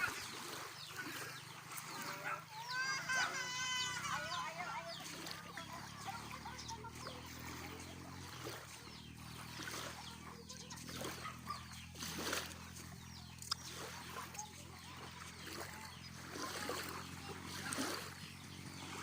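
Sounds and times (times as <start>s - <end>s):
water splashing: 0.0s - 19.0s.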